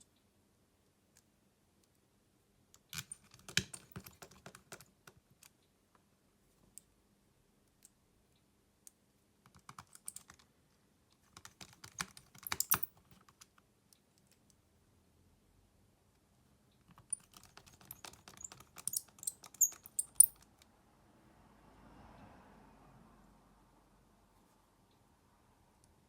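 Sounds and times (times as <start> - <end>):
small clicks and taps of tools: 11.1 - 14.6, 16.8 - 20.7.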